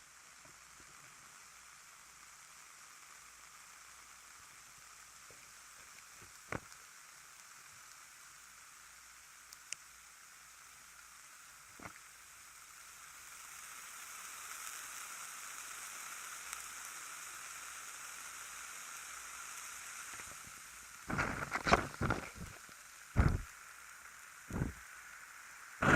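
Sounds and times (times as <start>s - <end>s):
ear candles sizzling hiss: 0.0s - 25.9s
faint ticks: 0.1s - 25.9s
loud crackling: 20.1s - 23.5s, 24.5s - 24.8s.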